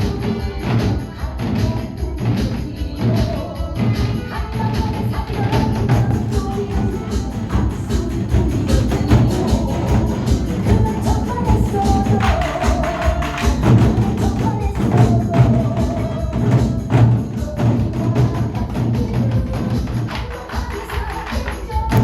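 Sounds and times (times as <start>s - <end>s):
backing track melody: 5.5s - 17.8s
barrel drum strokes: 5.5s - 18.7s.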